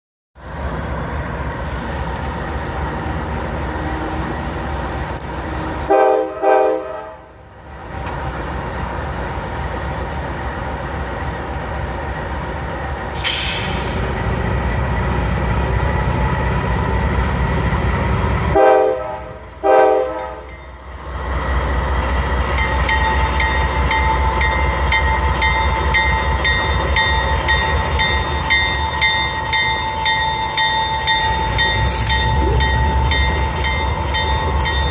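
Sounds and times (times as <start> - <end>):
diesel locomotive rumble: 0.4 - 34.9
locomotive horn blasts: 5.9 - 7.3, 18.5 - 20.5
air hiss: 13.2 - 14.0.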